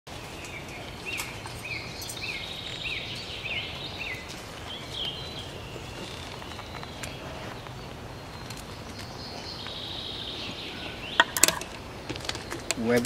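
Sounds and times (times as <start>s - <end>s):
bird calling rising and falling: 0.4s - 12.7s.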